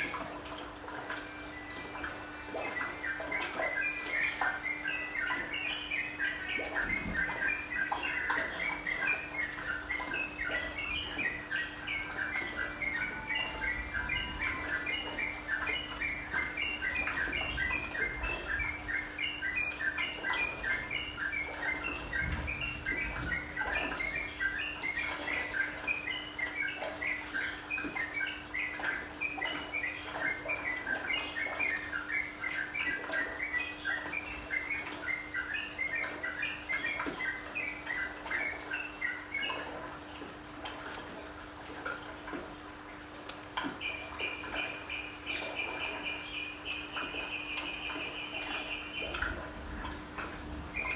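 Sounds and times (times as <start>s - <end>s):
low steady hum: 0.0s - 50.9s
bird song chirping: 1.1s - 39.9s, 42.4s - 50.9s.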